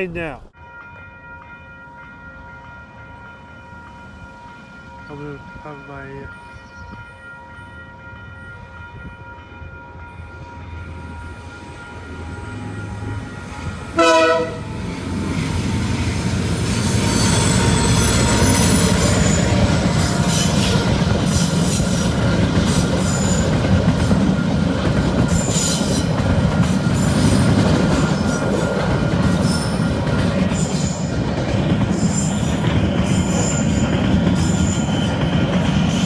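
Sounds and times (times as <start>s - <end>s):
train rumbling past: 0.2s - 36.0s
locomotive horn blast: 13.9s - 14.8s.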